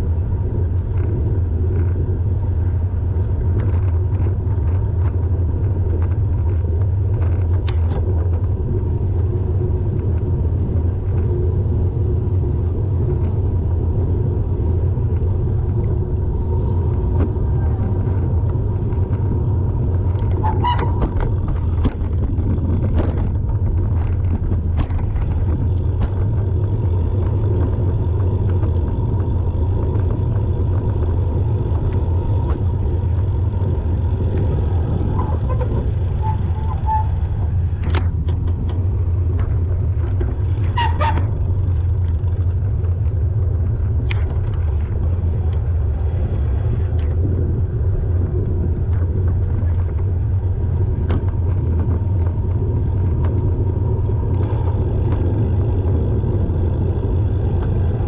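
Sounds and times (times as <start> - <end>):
car rumble in traffic: 0.0 - 58.0
high-pitched squeal: 35.1 - 37.4.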